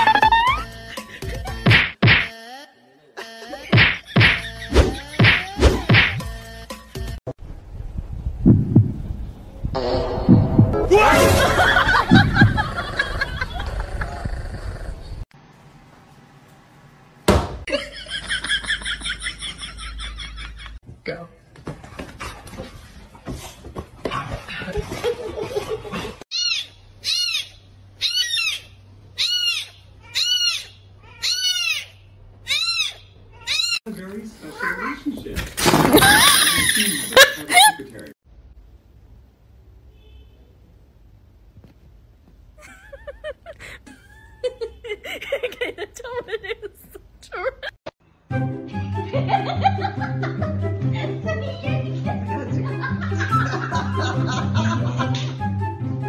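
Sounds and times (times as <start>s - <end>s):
music: 0.0s - 1.9s, 5.7s - 7.2s, 48.1s - 56.0s
heartbeat-like double thumps: 8.2s - 10.8s.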